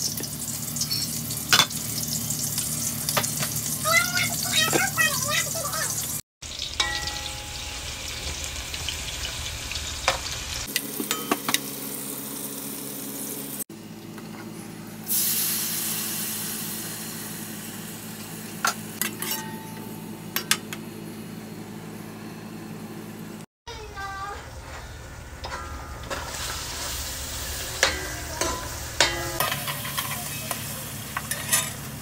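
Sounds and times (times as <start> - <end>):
onions sizzling in oil: 0.0 - 13.6, 14.9 - 19.0, 24.6 - 32.0
tomatoes sizzling in hot oil: 0.0 - 13.6, 15.1 - 19.0, 24.8 - 32.0.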